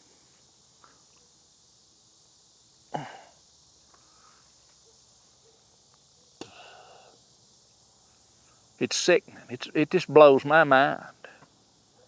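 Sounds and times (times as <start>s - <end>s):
insects trilling: 0.0s - 12.0s
person breathing: 4.0s - 4.6s, 6.4s - 7.2s.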